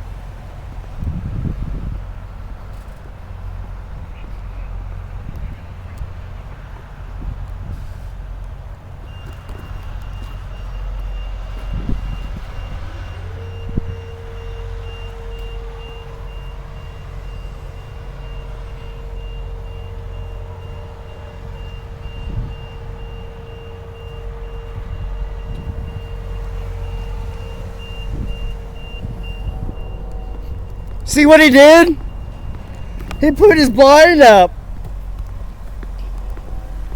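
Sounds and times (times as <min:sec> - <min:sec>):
low engine rumble: 0:00.0 - 0:36.9
reversing alarm beeping: 0:09.0 - 0:34.5.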